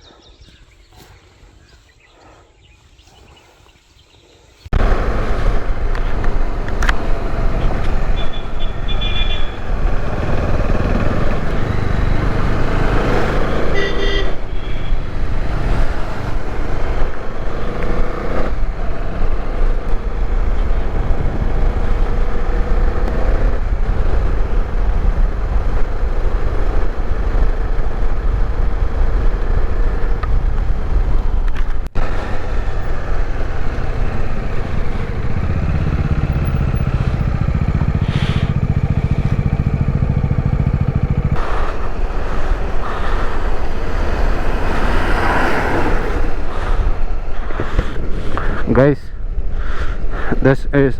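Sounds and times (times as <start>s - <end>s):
motorcycle engine running: 4.7s - 48.6s
horn toots: 4.8s - 16.0s, 33.7s - 47.1s
wind rush: 40.1s - 50.5s.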